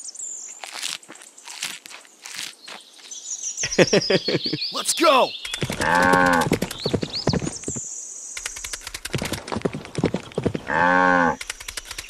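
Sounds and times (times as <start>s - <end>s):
clip-clop hoofbeats: 5.6s - 7.8s, 8.6s - 11.1s.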